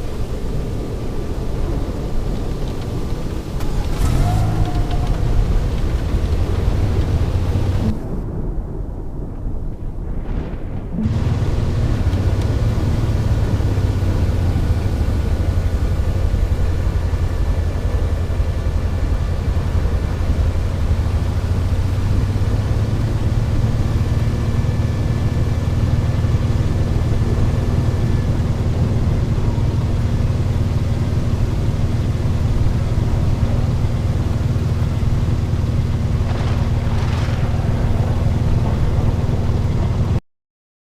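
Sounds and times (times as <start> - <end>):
tornado roar: 0.0 - 40.2.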